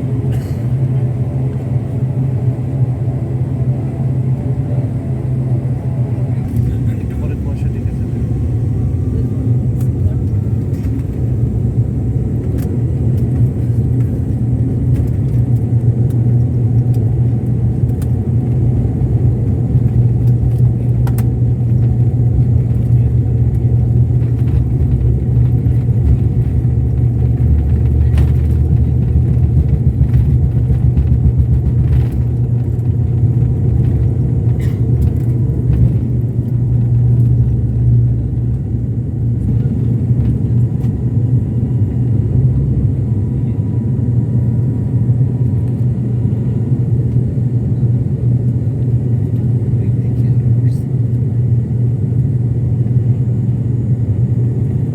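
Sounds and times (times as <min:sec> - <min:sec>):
airliner engine rumble: 0:00.0 - 0:54.9
light rattles and clicks: 0:19.5 - 0:38.7.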